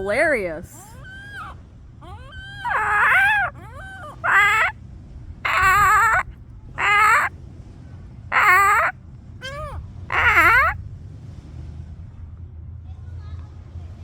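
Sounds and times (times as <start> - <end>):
gull calling: 0.0 - 4.7, 5.5 - 7.3, 8.3 - 10.8.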